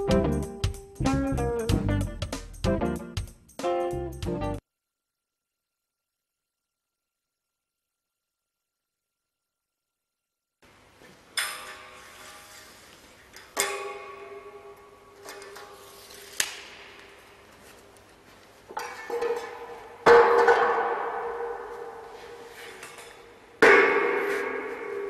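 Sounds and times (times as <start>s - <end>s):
metal pipe clanging and ringing: 13.4s - 16.0s, 18.8s - 25.0s.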